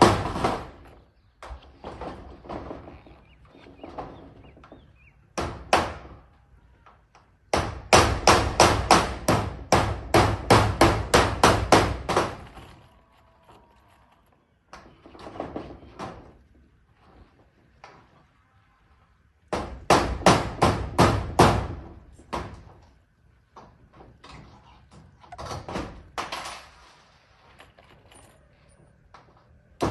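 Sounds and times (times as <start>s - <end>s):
hammer on metal roofing: 0.0s - 1.0s, 3.7s - 6.3s, 7.4s - 12.6s, 19.5s - 22.8s.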